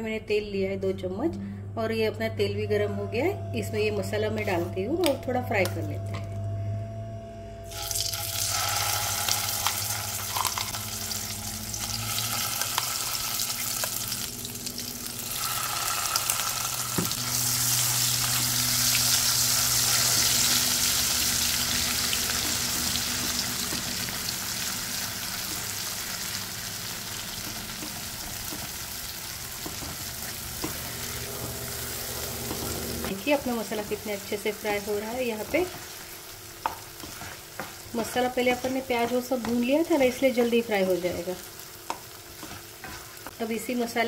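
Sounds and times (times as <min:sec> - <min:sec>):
paste sizzling in hot oil: 0:07.7 - 0:31.2, 0:33.5 - 0:43.4
spatula stirring: 0:35.2 - 0:41.2, 0:41.9 - 0:43.4.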